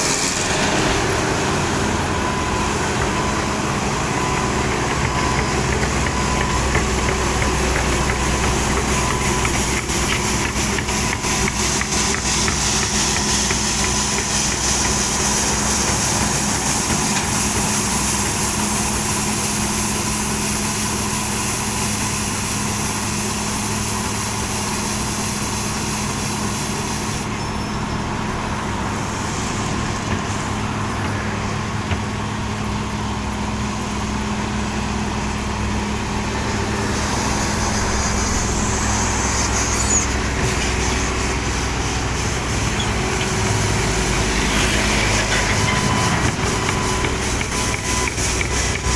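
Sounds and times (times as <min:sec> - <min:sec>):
heavy machinery engine hum: 0:00.0 - 0:48.9
hiss: 0:04.3 - 0:27.8, 0:36.2 - 0:48.9.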